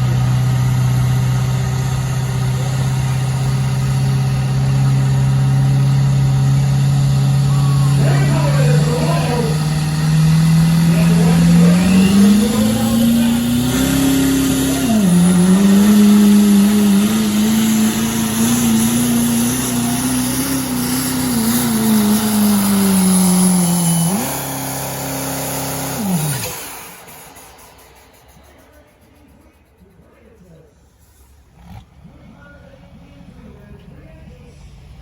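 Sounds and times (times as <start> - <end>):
diesel engine at full throttle: 0.0 - 30.4, 31.2 - 35.0
high turbo whistle: 7.2 - 17.4, 22.5 - 30.0.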